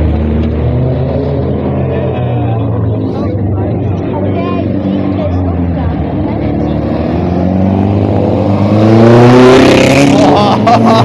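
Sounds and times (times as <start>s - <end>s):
racing car engine accelerating: 4.6s - 11.0s.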